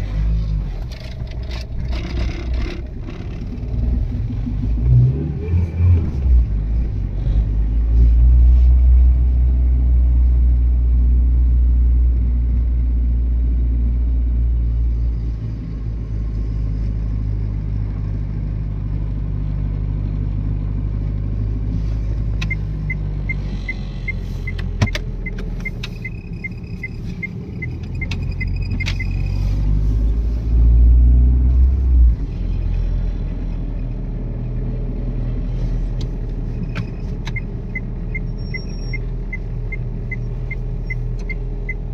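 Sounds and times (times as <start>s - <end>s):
car engine and road rumble: 0.0s - 41.9s
sharp clicks: 22.4s - 29.3s
even ticking: 22.4s - 29.4s.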